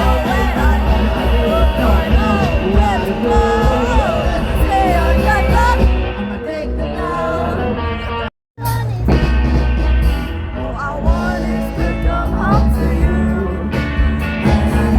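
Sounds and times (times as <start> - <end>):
person singing: 0.0 - 9.2, 10.6 - 14.9
rock band playing: 0.0 - 14.9.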